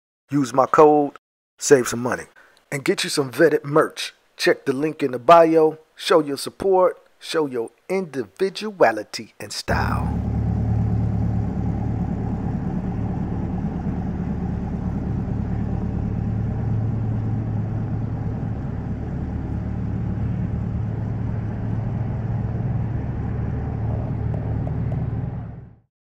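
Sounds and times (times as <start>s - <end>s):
car engine running: 9.7s - 25.8s.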